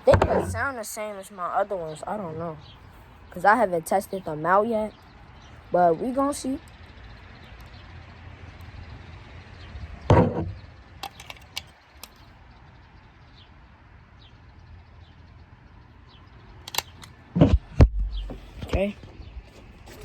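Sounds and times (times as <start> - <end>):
loud thump: 10.1 - 10.6
toy cap gun clicks: 16.7 - 17.2
low steady rumble: 17.4 - 19.8.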